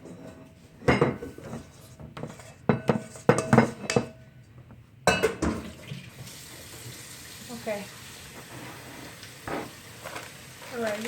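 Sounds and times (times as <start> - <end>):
utensils and dishes clattering: 0.0 - 4.2, 5.1 - 6.0.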